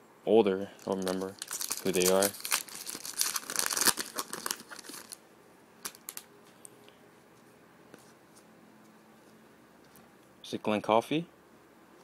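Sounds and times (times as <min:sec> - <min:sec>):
crinkling of card packaging: 0:00.8 - 0:05.2, 0:05.8 - 0:06.3.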